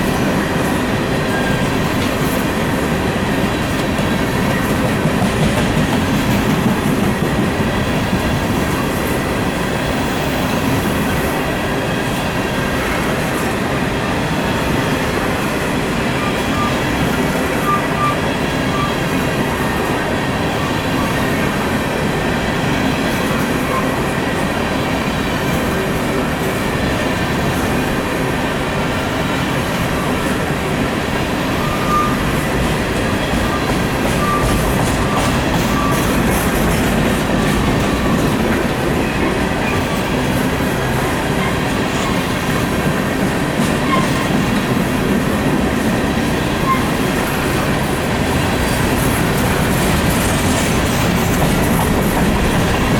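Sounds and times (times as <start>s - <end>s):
train wheels rumbling on rails: 0.0s - 52.9s
faint wheel squeals: 31.5s - 32.4s.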